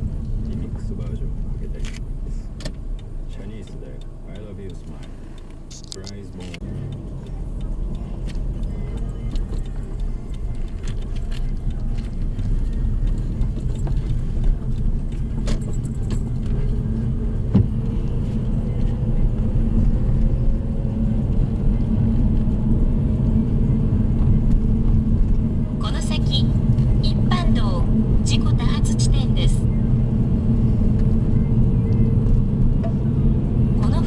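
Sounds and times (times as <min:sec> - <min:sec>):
car road and engine rumble: 0:00.0 - 0:34.0.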